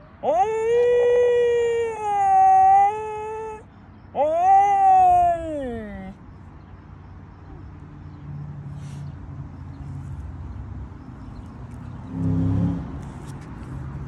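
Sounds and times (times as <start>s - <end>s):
vehicle engine humming: 7.2s - 14.0s.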